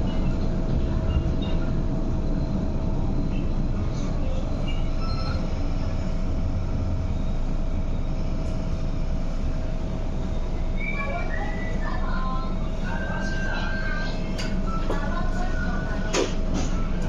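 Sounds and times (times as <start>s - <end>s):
train low rumble: 0.0s - 17.0s
faint short squeals: 4.6s - 5.6s.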